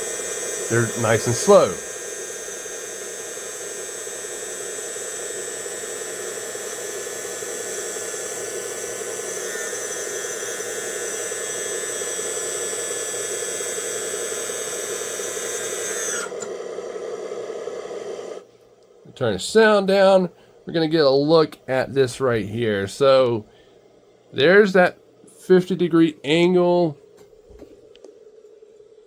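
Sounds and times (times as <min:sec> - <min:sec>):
electric motor noise: 0:00.0 - 0:18.5
hydraulic pump whine: 0:00.0 - 0:18.5.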